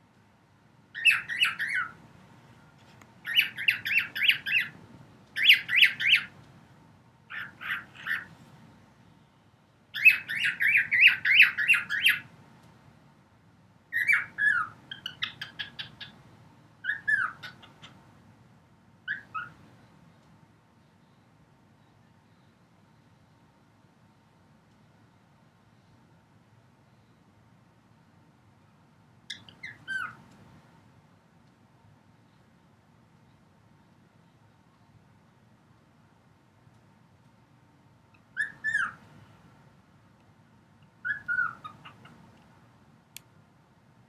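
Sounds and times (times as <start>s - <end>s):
cockatiel chirping: 1.0s - 2.0s, 3.2s - 4.8s, 5.4s - 6.3s, 7.3s - 8.3s, 10.0s - 12.3s, 13.9s - 16.2s, 16.8s - 18.0s, 19.1s - 19.6s, 29.3s - 30.2s, 38.4s - 39.1s, 41.0s - 42.2s.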